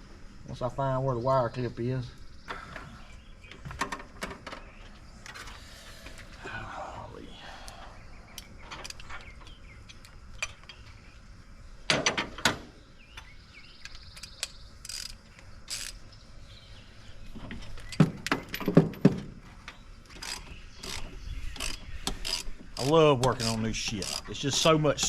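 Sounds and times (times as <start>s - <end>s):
clicks and clinks of parts: 8.3s - 10.9s, 13.2s - 16.0s, 17.6s - 25.0s.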